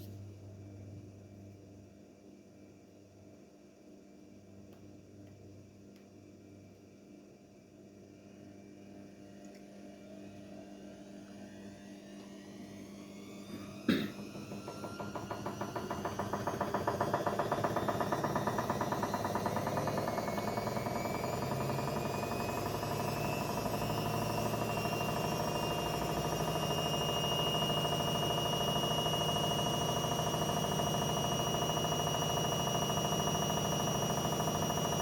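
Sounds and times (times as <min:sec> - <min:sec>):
washing machine drum spinning: 0:12.9 - 0:35.0.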